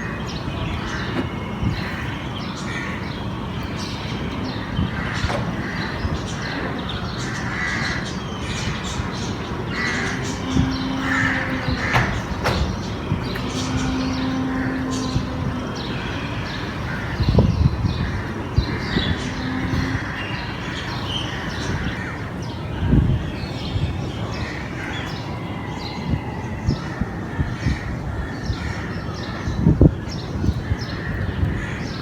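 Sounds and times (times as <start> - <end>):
steady background rumble: 0.0 - 32.0
crows cawing: 7.2 - 22.2
low droning tone: 8.8 - 20.5.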